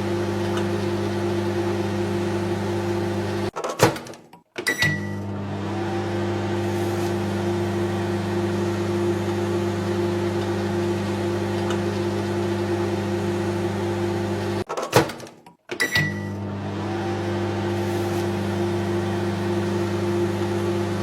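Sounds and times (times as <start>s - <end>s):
microwave oven humming: 0.0s - 3.5s, 4.8s - 14.6s, 16.0s - 21.0s.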